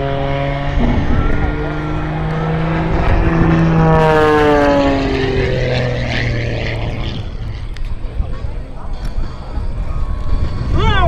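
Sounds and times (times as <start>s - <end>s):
propeller plane passing by: 0.0s - 11.0s.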